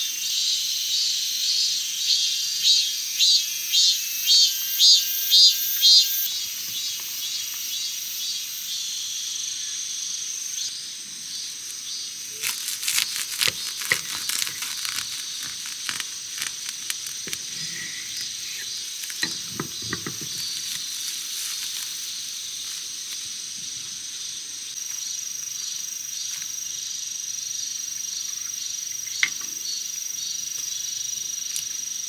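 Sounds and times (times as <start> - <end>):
high insect drone: 0.0 - 32.0
insects calling in pulses: 0.0 - 32.0
crinkling clicks and crackles: 12.3 - 22.1.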